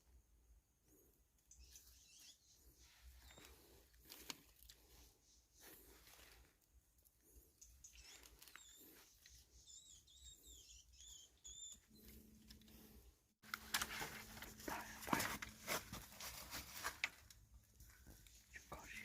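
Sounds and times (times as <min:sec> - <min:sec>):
small bird chirping: 0:00.9 - 0:04.0, 0:04.8 - 0:06.0, 0:07.2 - 0:12.3
handling rustling and clicks: 0:13.4 - 0:18.4.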